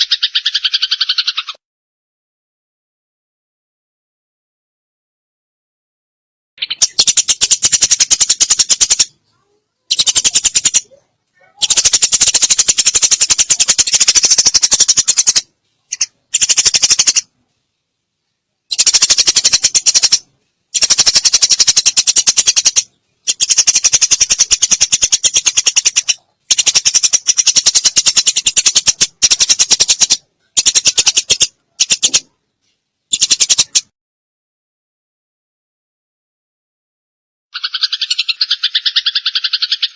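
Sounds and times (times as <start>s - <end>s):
sparrow chattering: 0.0s - 1.6s, 6.6s - 17.3s, 18.7s - 32.4s, 33.1s - 33.9s, 37.6s - 39.9s.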